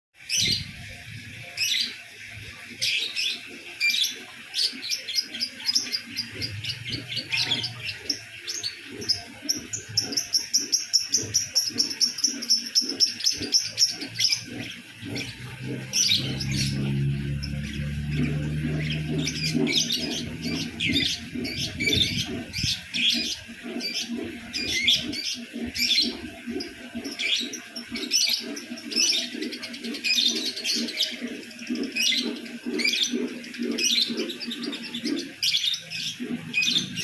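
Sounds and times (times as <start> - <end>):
bird chirping: 2.8 - 37.0
low steady hum: 13.4 - 29.6.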